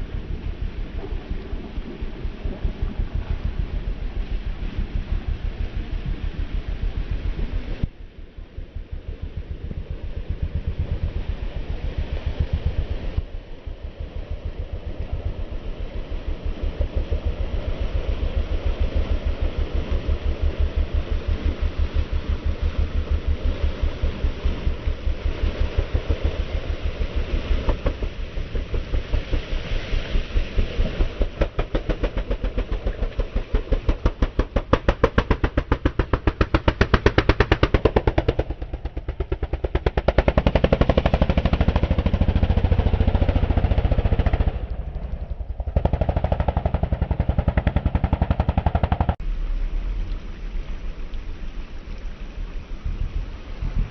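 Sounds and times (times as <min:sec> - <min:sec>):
racing engine pulsing exhaust: 0:08.6 - 0:49.4.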